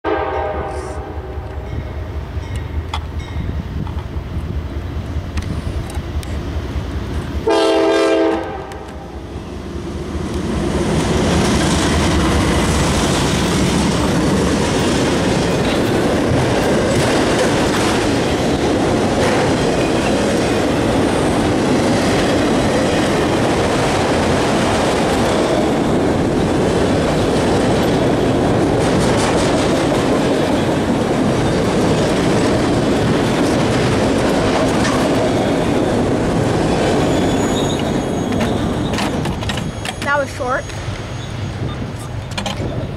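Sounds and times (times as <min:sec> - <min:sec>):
locomotive horn blast: 0:00.0 - 0:01.7, 0:07.4 - 0:09.0
train wheels on rails: 0:00.1 - 0:42.9.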